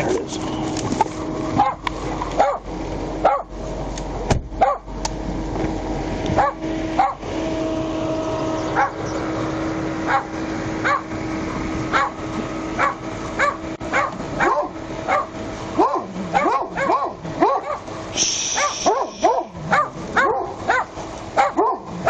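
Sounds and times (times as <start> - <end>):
dog barking: 1.6 - 1.8, 2.4 - 2.6, 3.2 - 3.5, 4.6 - 4.9, 6.4 - 7.2, 8.8 - 9.0, 10.1 - 11.1, 11.9 - 12.2, 12.8 - 17.9, 18.5 - 22.0.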